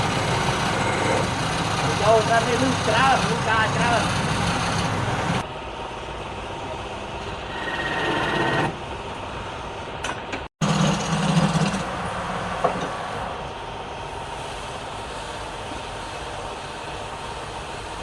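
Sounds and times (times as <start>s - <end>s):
wood lathe running: 0.0s - 5.4s.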